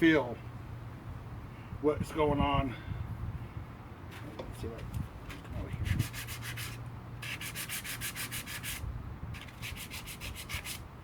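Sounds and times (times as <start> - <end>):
sandpaper rubbing: 5.8 - 8.8, 9.4 - 10.8.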